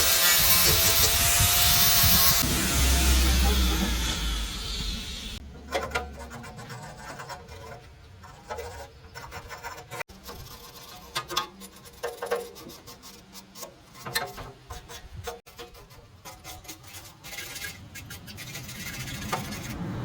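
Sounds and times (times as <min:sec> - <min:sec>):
power tool hum winding down: 0:00.0 - 0:05.4
hand work scrapes and clicks: 0:05.4 - 0:19.8.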